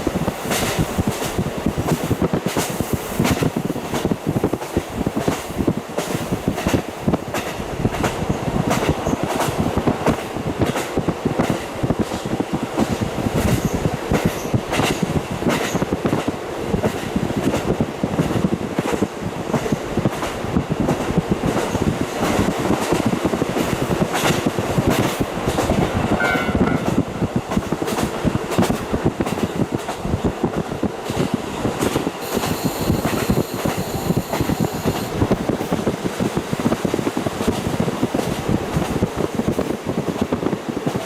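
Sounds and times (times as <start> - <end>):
diesel railcar engine: 19.8 - 40.1.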